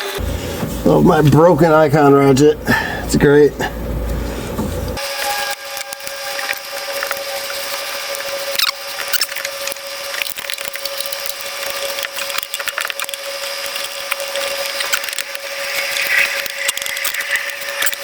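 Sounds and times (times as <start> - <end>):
steady hum: 0.0 - 18.0
hand ratchet clicking: 5.2 - 18.0.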